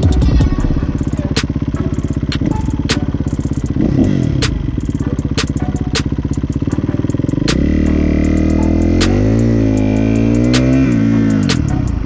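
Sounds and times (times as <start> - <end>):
dirt bike engine running: 0.0 - 12.0
sharp clicks: 4.4 - 7.7, 8.3 - 12.0.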